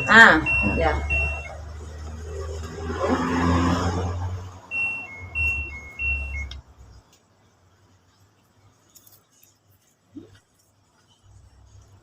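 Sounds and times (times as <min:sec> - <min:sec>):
electronic beeps: 0:00.0 - 0:01.8, 0:04.7 - 0:06.6.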